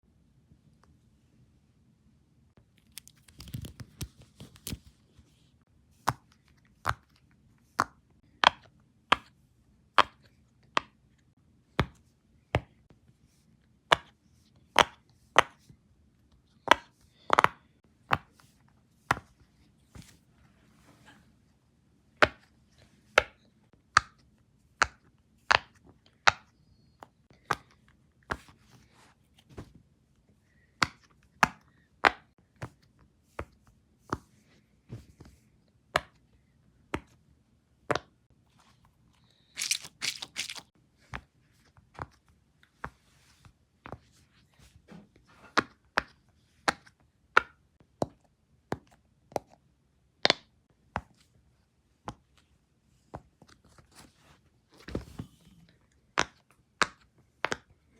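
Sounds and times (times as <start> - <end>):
fidget toys clicking and snapping: 39.6 - 40.6.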